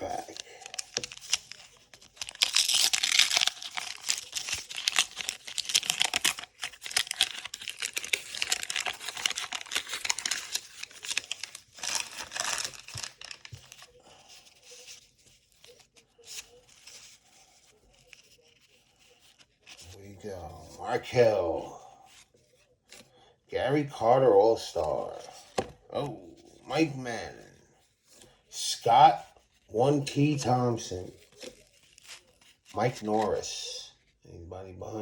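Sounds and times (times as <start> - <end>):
paper wrapper tearing and crinkling: 0.0 - 20.1, 28.9 - 33.6
cards rustling: 0.0 - 33.8.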